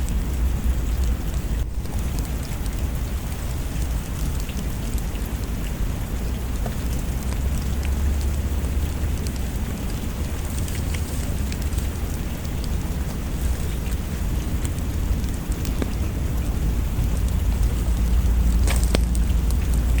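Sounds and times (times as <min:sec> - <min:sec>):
drops ticking: 0:00.0 - 0:20.0
rain falling: 0:00.0 - 0:20.0
deep low rumble: 0:07.0 - 0:20.0.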